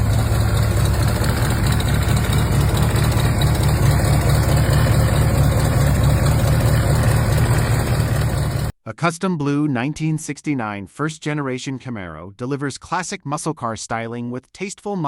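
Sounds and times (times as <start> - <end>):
car engine idling: 0.0 - 8.7.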